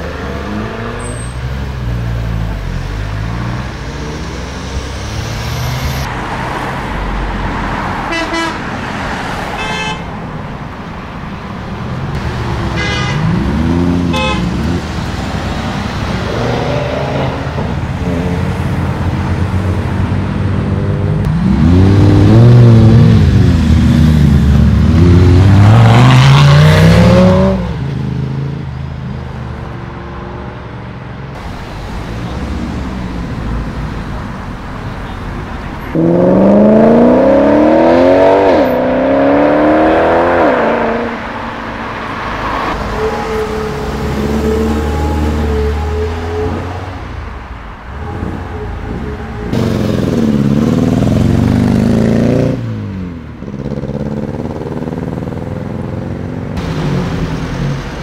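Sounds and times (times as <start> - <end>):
sports car engines revving: 0.0 - 8.1, 11.8 - 30.6, 31.3 - 47.4, 48.0 - 58.0
car horn toots: 8.1 - 8.6, 9.6 - 10.1, 12.7 - 13.4, 14.1 - 14.6.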